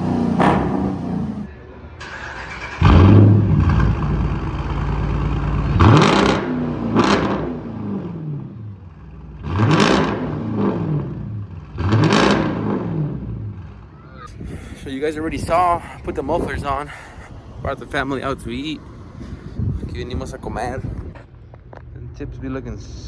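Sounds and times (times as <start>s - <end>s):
car engine revving: 0.0s - 14.2s.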